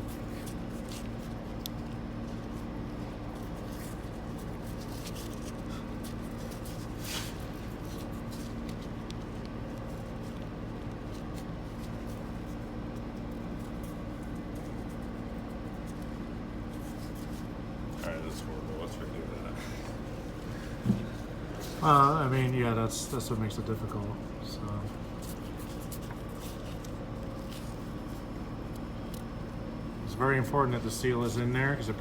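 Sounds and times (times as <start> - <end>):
steady electrical hum: 0.0 - 32.0.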